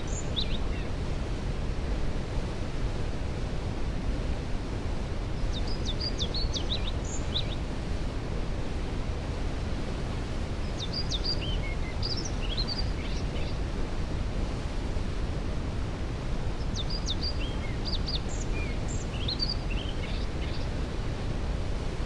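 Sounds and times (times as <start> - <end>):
songbird chirps and trills: 5.4 - 7.6, 10.6 - 13.6, 16.6 - 20.8.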